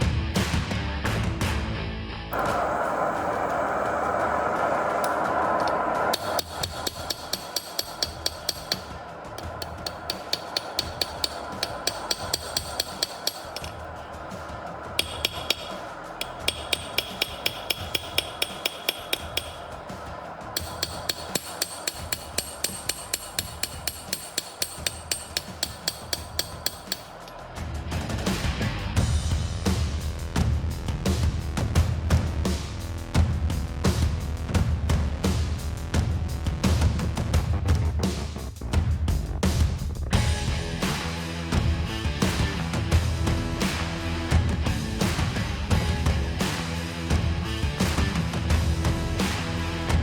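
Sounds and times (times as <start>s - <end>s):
steady rushing noise: 2.3s - 50.0s
hammer forging steel: 2.4s - 27.5s.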